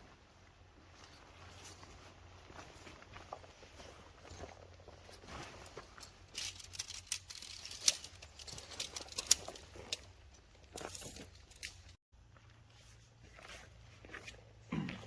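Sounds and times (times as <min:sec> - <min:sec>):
tent fabric rustling: 0:00.0 - 0:11.9.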